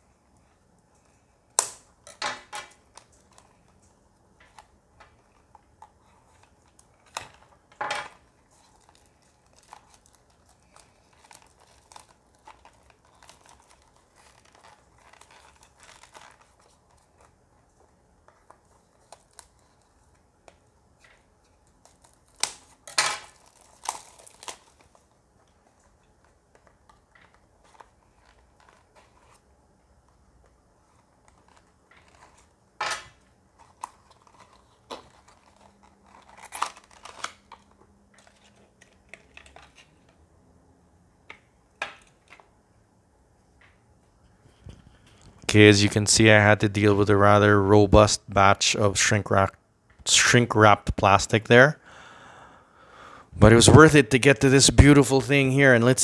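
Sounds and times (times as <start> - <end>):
plastic shrink-wrap tearing: 8.6 - 17.3, 21.7 - 25.2, 33.6 - 39.8.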